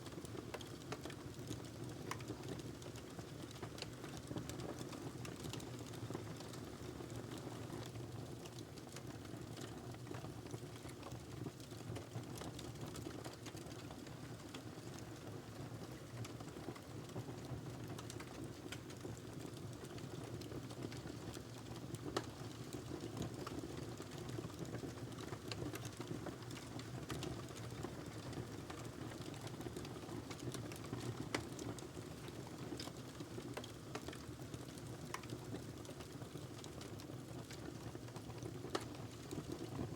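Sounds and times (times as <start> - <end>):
low rumble of burning: 0.1 - 39.9
wood fire pops and snaps: 29.8 - 31.7.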